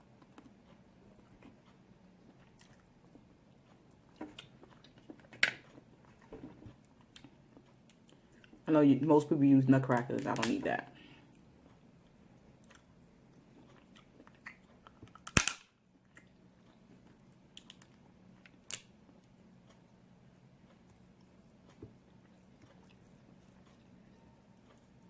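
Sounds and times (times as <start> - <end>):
crab shell cracking: 14.0 - 16.3, 17.5 - 19.0
shell clicks and crackles: 14.0 - 19.0.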